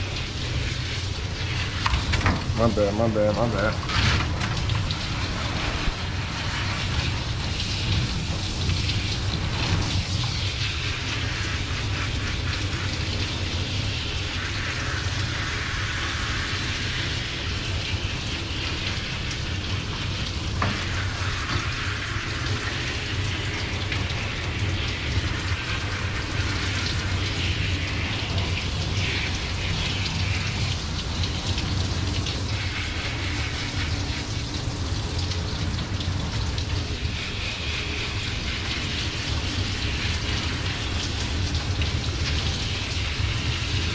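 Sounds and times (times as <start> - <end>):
water spraying from hose: 0.0 - 43.9.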